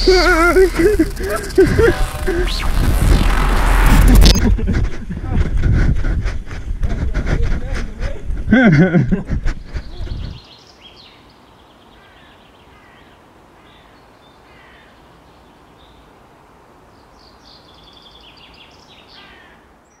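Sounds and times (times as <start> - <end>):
faint outdoor hiss: 0.0 - 5.7, 6.4 - 20.0
birds calling and chirping: 9.4 - 14.8.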